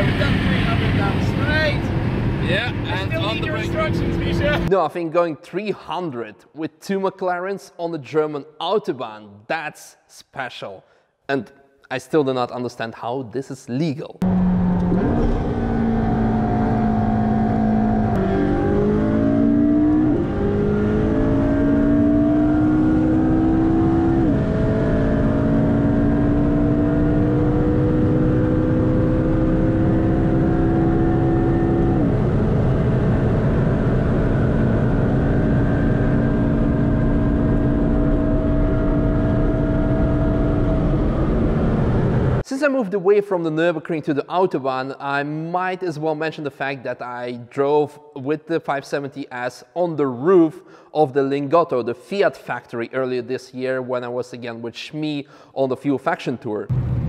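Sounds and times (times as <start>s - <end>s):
car engine accelerating with upshifts: 1.9s - 4.7s, 14.2s - 42.4s
low rumble: 32.2s - 42.4s, 56.7s - 57.0s.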